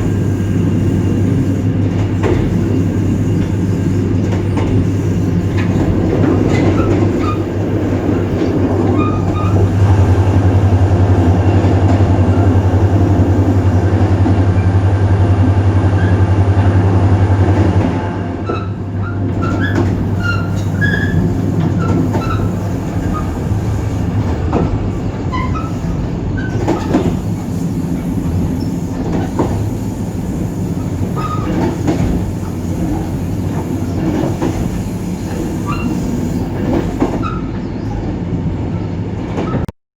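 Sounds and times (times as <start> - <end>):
locomotive diesel engine droning: 0.0 - 36.8
train rumbling on rails: 0.0 - 39.7
wheel squeals: 2.2 - 14.0, 18.4 - 38.0.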